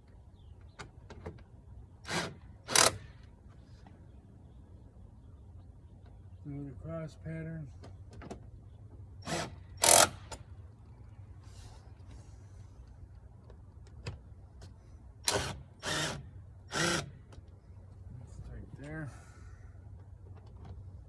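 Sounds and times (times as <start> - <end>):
impact driver bursts: 2.1 - 3.2, 9.2 - 10.4, 15.2 - 17.2.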